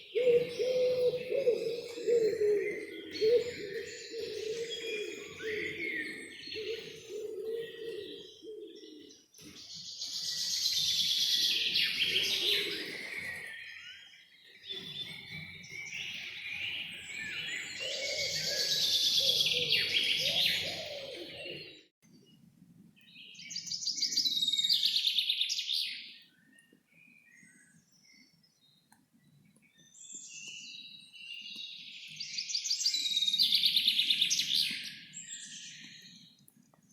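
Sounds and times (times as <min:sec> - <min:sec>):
songbirds chirping: 0:00.0 - 0:36.9
low cooing or droning: 0:00.1 - 0:06.0.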